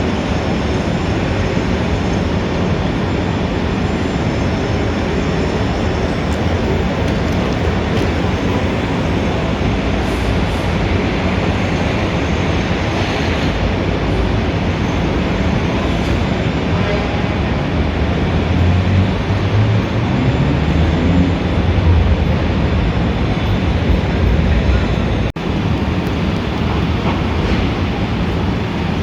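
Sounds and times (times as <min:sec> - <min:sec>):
heavy vehicle engine rumbling: 0:00.0 - 0:29.0
passing vehicles: 0:00.0 - 0:29.0
crowd noise: 0:14.6 - 0:29.0.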